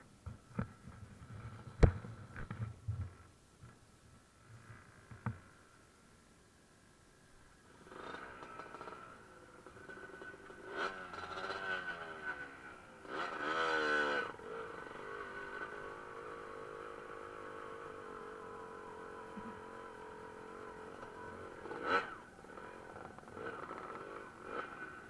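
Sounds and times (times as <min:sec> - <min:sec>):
dirt bike engines revving: 0:07.8 - 0:25.0.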